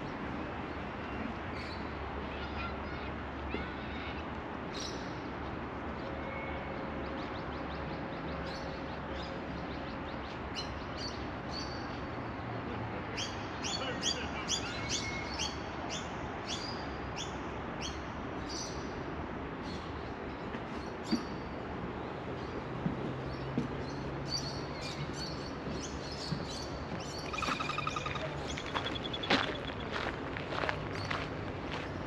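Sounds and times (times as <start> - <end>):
low background noise: 0.0 - 32.0
small bird chirping: 24.3 - 30.0.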